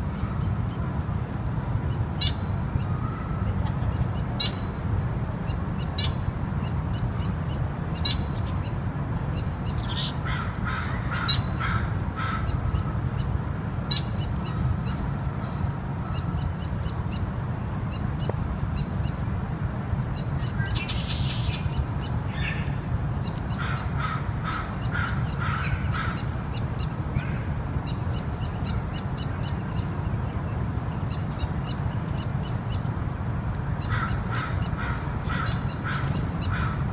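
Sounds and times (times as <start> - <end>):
harsh bird calls: 9.7 - 13.0, 20.4 - 30.1, 33.8 - 36.9.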